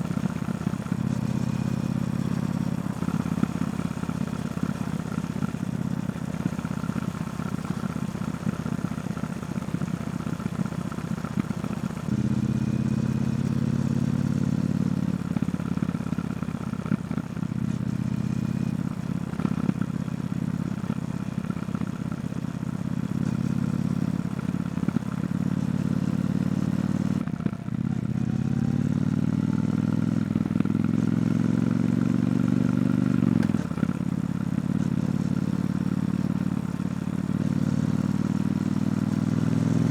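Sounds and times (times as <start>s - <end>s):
motorcycle engine revving: 23.0s - 39.9s.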